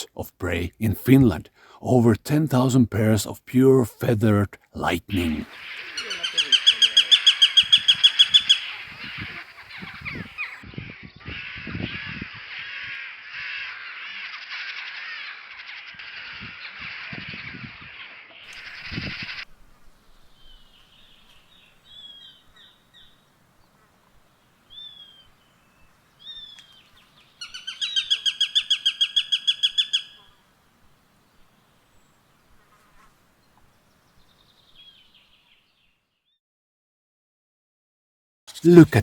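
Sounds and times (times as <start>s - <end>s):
hawk calling: 5.1s - 10.6s, 11.2s - 17.1s, 18.4s - 19.6s, 26.2s - 30.5s.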